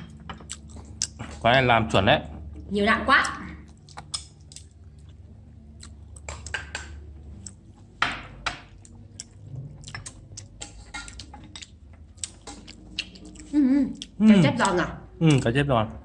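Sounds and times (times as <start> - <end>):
chopsticks and dishes clinking: 0.0 - 2.0, 5.8 - 13.5
chewing: 0.3 - 1.4, 3.6 - 6.6, 7.3 - 7.9, 8.7 - 15.5.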